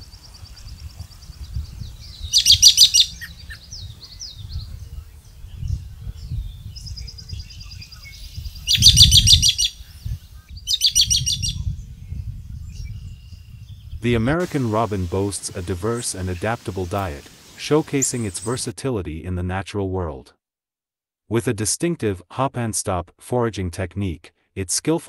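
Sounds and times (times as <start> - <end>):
faint high bird chirps: 0.0 - 14.6
rapid high bird calls: 2.0 - 4.6, 7.6 - 11.6, 14.4 - 18.7.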